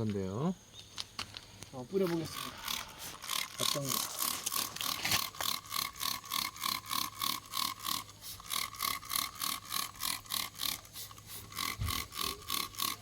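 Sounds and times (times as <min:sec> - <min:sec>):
trigger sprayer squirting: 0:02.0 - 0:13.0.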